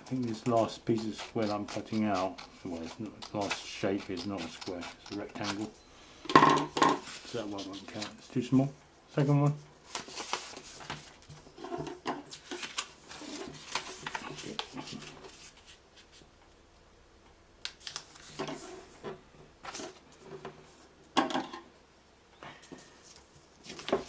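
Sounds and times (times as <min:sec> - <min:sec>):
scissors snipping paper: 0:00.0 - 0:05.7
paper rustling: 0:07.0 - 0:08.2, 0:09.8 - 0:16.2, 0:17.8 - 0:19.0, 0:22.8 - 0:24.0.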